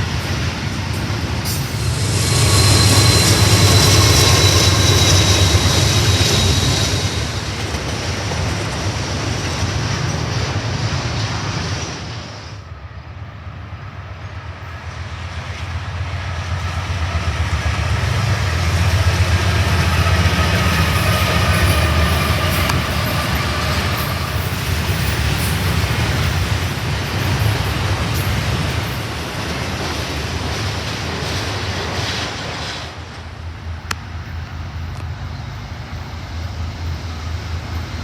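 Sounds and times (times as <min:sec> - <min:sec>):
freight train rumbling: 0:00.0 - 0:38.0
thin squealing tones: 0:01.5 - 0:07.8.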